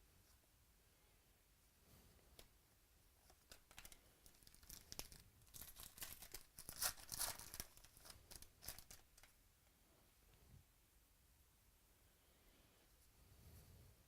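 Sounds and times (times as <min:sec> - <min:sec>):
foil wrapper crinkling and tearing: 0:03.3 - 0:09.4.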